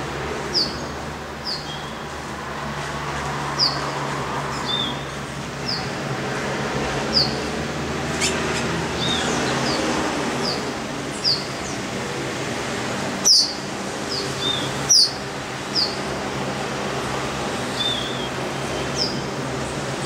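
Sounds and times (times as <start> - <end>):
bird chirping: 8.1 - 11.8, 13.2 - 16.0.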